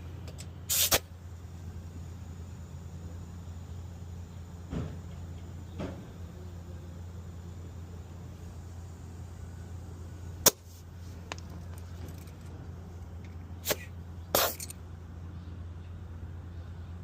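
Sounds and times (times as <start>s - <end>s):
steady low hum: 0.0s - 17.0s
air hiss bursts: 0.7s - 1.1s, 13.6s - 14.7s.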